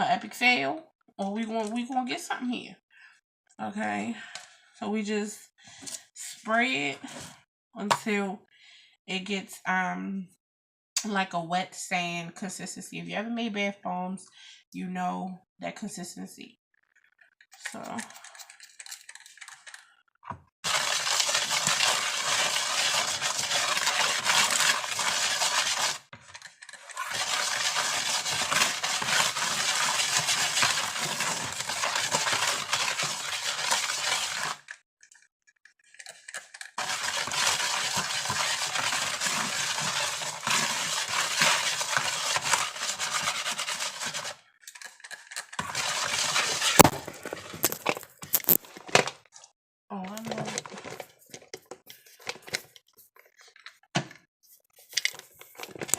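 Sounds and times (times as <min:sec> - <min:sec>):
utensil scraping through powder: 0:20.6 - 0:26.1, 0:26.7 - 0:34.7, 0:36.8 - 0:44.4, 0:45.6 - 0:47.0.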